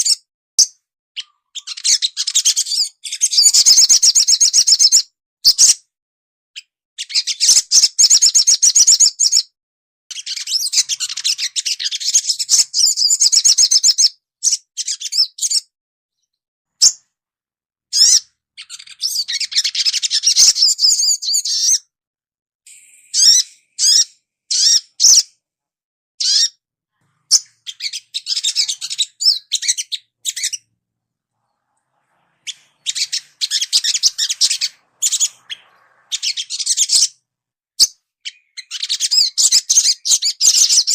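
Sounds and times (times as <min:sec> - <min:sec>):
high-pitched bird twittering trills: 0:10.1 - 0:15.7, 0:17.9 - 0:21.9, 0:22.7 - 0:25.3, 0:27.2 - 0:30.7, 0:32.4 - 0:37.2, 0:37.8 - 0:40.9
sharp bird chips: 0:22.7 - 0:25.3, 0:32.5 - 0:37.2.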